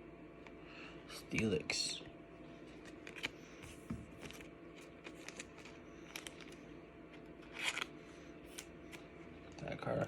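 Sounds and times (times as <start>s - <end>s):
trading cards clicks and rustles: 2.7s - 9.8s.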